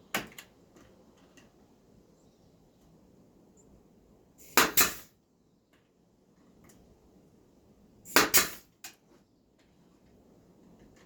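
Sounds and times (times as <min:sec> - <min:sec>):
nail gun firing into wood: 0:04.4 - 0:05.1, 0:08.1 - 0:08.7.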